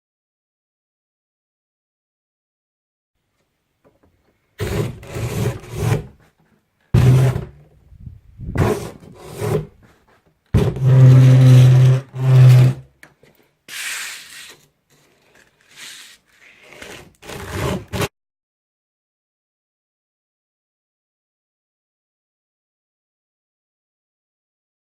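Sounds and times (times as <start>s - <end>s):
wooden door scraping on floor: 4.6s - 6.3s, 7.0s - 7.6s, 8.5s - 12.9s, 13.7s - 18.1s.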